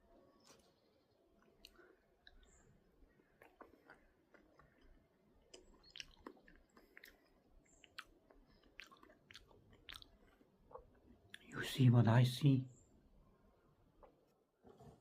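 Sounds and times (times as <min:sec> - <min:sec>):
faint small clicks and crackles: 0:03.2 - 0:11.5.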